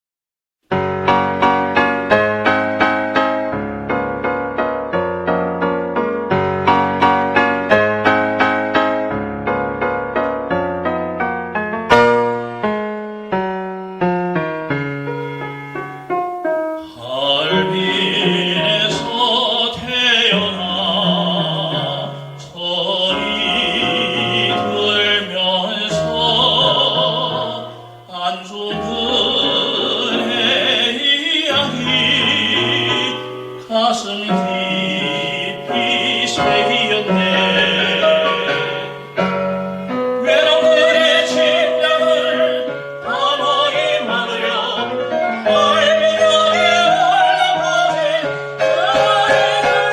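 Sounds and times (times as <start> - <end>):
piano accompaniment: 0.6 - 49.9
operatic singing voice: 16.8 - 39.1, 39.9 - 49.9.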